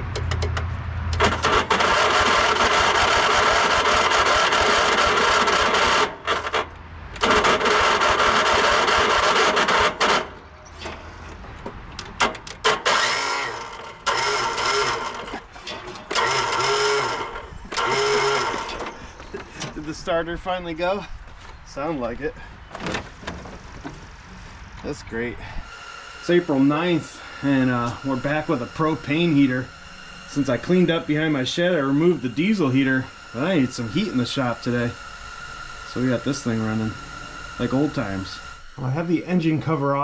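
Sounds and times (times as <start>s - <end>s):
electric starter cranking and grinding: 0.0s - 20.8s, 25.4s - 40.0s
starter clicks: 0.1s - 19.8s.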